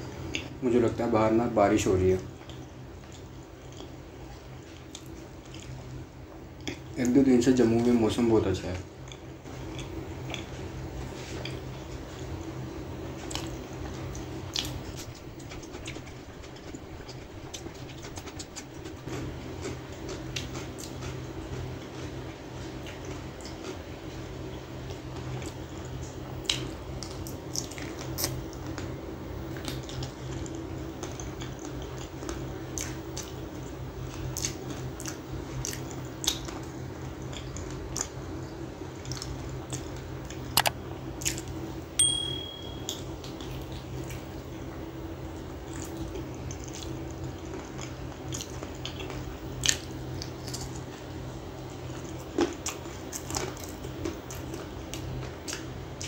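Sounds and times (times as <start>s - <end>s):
steady low hum: 0.0s - 56.0s
chewing and biting chicken: 2.2s - 7.2s, 8.8s - 41.6s, 45.4s - 56.0s
high beep: 42.0s - 42.9s.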